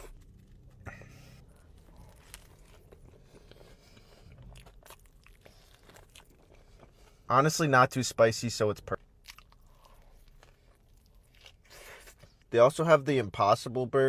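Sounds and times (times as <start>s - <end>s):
person chewing and crunching: 0.0s - 7.3s, 8.9s - 12.5s.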